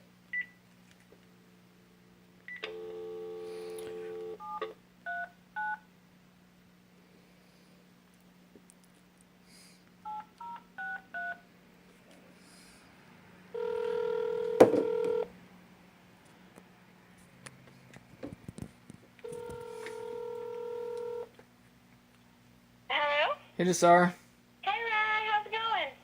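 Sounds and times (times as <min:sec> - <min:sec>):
phone ringback tone: 0:02.5 - 0:05.8, 0:13.5 - 0:15.3, 0:19.2 - 0:21.3
phone keypad tones beeping: 0:10.1 - 0:11.4.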